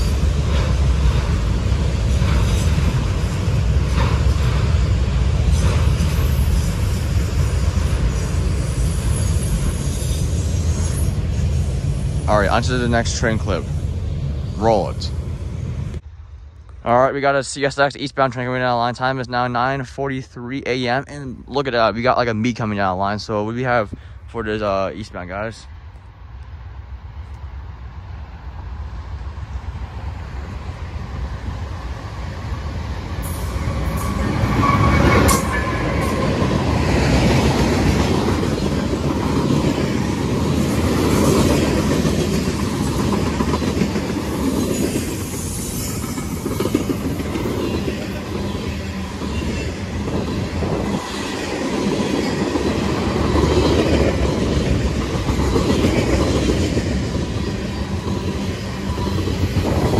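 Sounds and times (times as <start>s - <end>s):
freight train passing: 0.0s - 59.9s.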